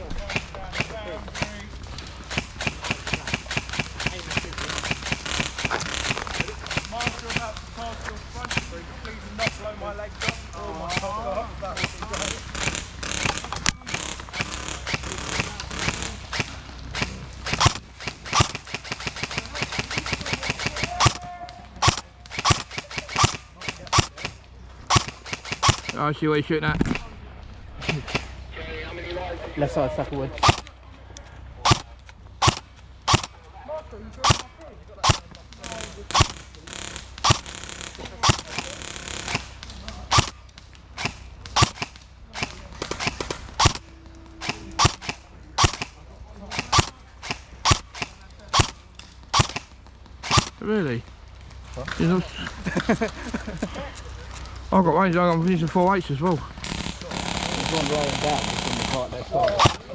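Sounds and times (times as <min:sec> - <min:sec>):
airsoft automatic fire: 0:00.1 - 0:08.8, 0:09.4 - 0:26.1, 0:30.4 - 0:30.7, 0:31.6 - 0:33.4, 0:34.2 - 0:50.6, 0:56.6 - 0:59.9
single airsoft shots: 0:10.2 - 0:26.0, 0:30.4 - 0:30.7, 0:31.7 - 0:33.4, 0:34.2 - 0:40.4, 0:41.0 - 0:43.8, 0:44.4 - 0:50.6, 0:56.6 - 0:59.9.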